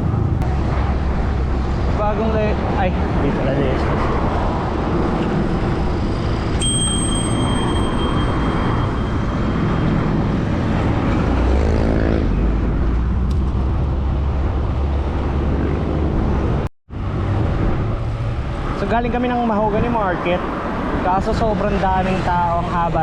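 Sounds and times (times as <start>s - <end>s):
heavy vehicle rumble: 0.0s - 6.6s
road traffic: 0.0s - 23.0s
wind: 0.0s - 23.0s
bicycle bell ring: 6.6s - 10.5s.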